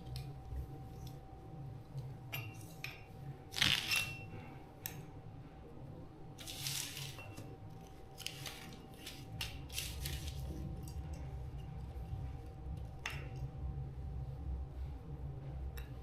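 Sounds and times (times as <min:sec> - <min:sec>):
faint steady whine: 0:00.0 - 0:16.0
steady low hum: 0:00.0 - 0:16.0
snipping and scraping handwork: 0:03.5 - 0:04.2.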